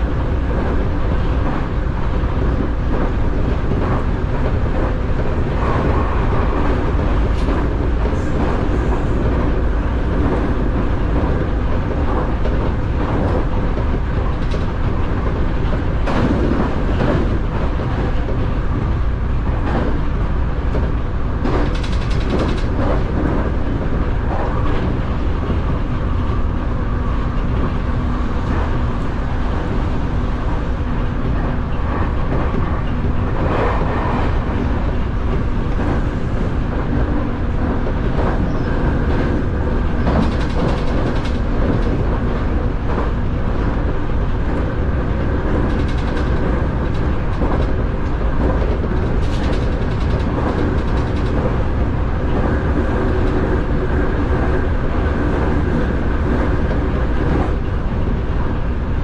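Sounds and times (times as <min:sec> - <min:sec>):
train wheels and motors rumbling: 0:00.0 - 0:59.0
wheels clacking over rail joints: 0:00.1 - 0:58.1.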